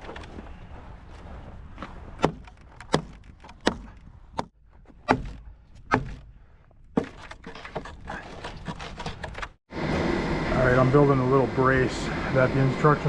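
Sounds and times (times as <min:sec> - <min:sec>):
hammer striking wood: 0:02.2 - 0:06.3.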